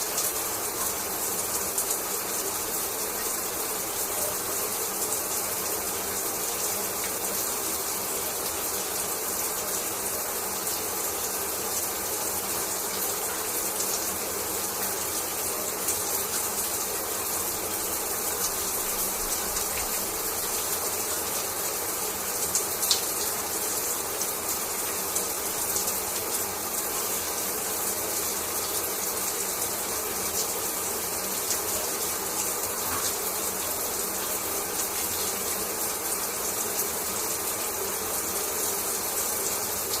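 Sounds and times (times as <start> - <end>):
shower water running: 0.0 - 40.0.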